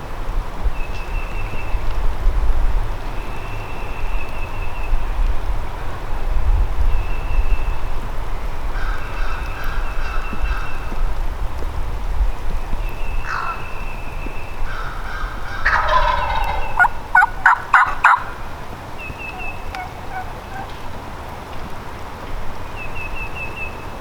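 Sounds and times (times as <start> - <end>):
small birds chirping: 0.6 - 2.1, 3.0 - 6.2, 6.8 - 11.7, 12.5 - 21.3
turkey gobbling: 14.7 - 20.8.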